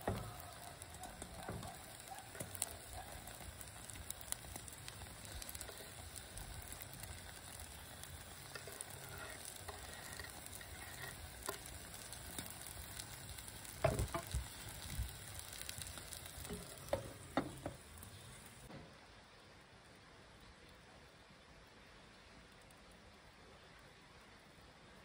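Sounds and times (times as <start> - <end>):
omelette sizzling in a pan: 0.0 - 18.7.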